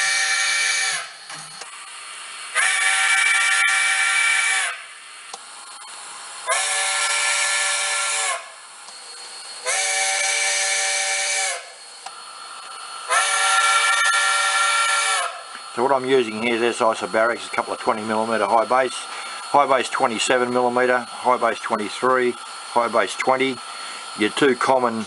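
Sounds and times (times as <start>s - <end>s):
steam locomotive whistle blasts: 0.0s - 1.3s, 2.4s - 5.1s, 6.4s - 12.0s, 13.0s - 16.3s
steam hiss: 0.0s - 5.5s, 6.3s - 25.0s.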